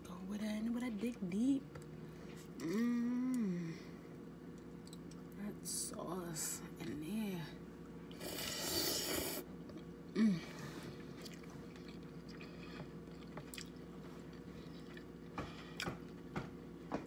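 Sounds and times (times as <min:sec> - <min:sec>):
person humming mm: 0:02.6 - 0:04.0, 0:10.1 - 0:10.8
chewing and wet mouth sounds: 0:04.5 - 0:05.4, 0:10.8 - 0:16.4.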